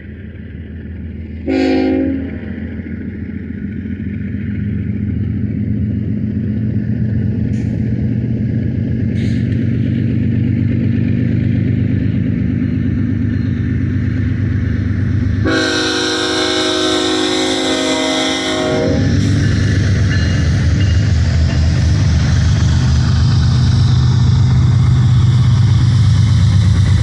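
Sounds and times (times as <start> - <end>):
diesel locomotive engine drone: 0.0 - 27.0
locomotive air horn chord: 1.4 - 2.6, 15.4 - 19.5.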